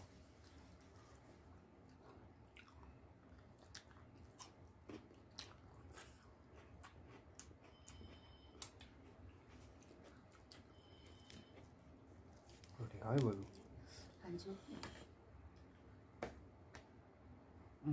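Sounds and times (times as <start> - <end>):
chewing and mouth clicks: 1.8 - 11.8.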